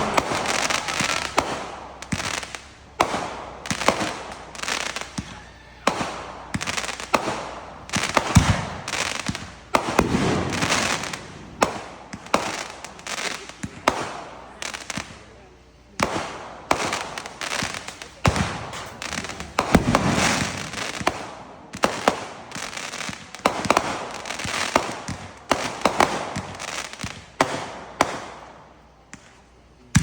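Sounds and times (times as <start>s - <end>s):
deep firework boom: 0.0s - 12.3s
fireworks bangs: 0.0s - 30.0s.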